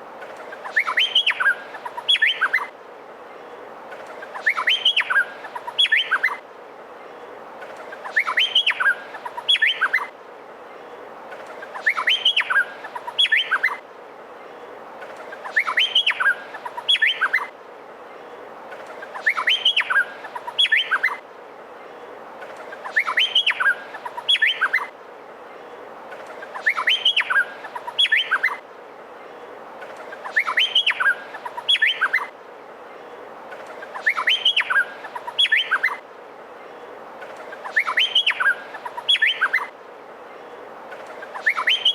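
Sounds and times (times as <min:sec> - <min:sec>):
steady background hiss: 0:00.0 - 0:41.9
bird singing whistled notes: 0:00.6 - 0:02.7, 0:04.4 - 0:06.4, 0:08.0 - 0:10.1, 0:11.8 - 0:13.8, 0:15.4 - 0:17.5, 0:19.2 - 0:21.2, 0:22.8 - 0:24.9, 0:26.5 - 0:28.6, 0:30.2 - 0:32.3, 0:33.9 - 0:36.0, 0:37.6 - 0:39.7, 0:41.3 - 0:41.9.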